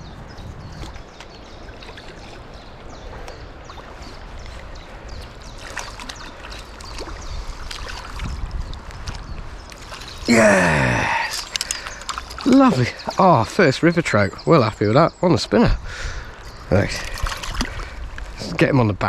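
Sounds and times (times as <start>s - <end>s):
small ticks and splashes: 0.8s - 10.3s, 11.3s - 13.1s, 16.9s - 18.0s
river water running over stones: 0.9s - 14.1s.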